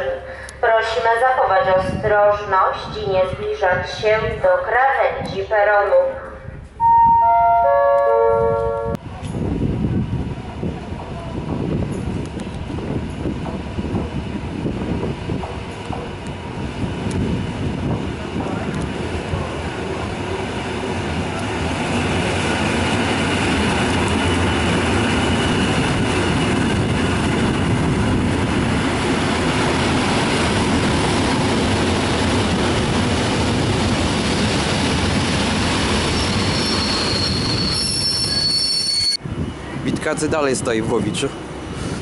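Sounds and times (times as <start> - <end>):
train wheels rumbling on rails: 8.5 - 42.0
high wheel or brake squeal: 36.1 - 39.2.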